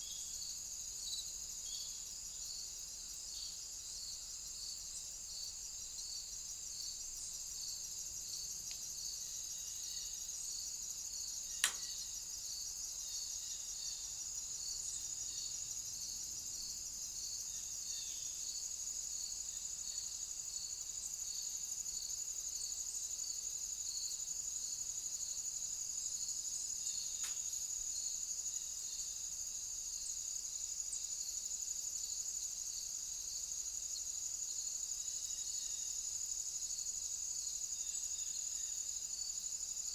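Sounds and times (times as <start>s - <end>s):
crickets trilling: 0.0s - 39.9s
sharp click: 11.6s - 12.0s, 27.2s - 27.4s.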